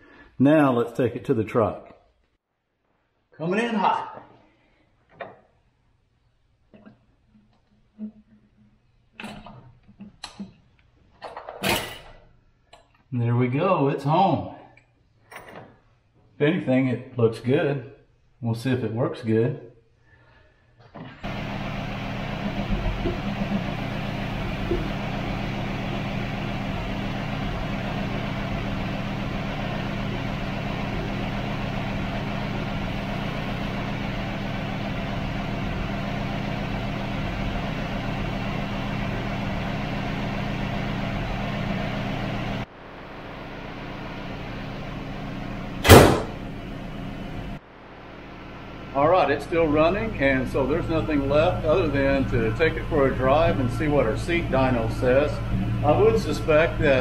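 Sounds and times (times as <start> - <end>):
car engine idling: 21.2 - 57.0
hood slamming shut: 45.8 - 46.4.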